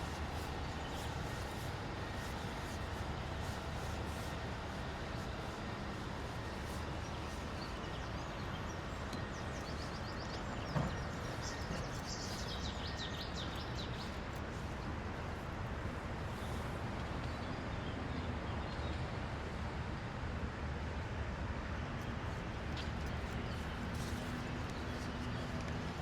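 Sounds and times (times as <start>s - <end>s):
city traffic hum: 0.0s - 26.0s
small birds chirping: 6.4s - 14.4s.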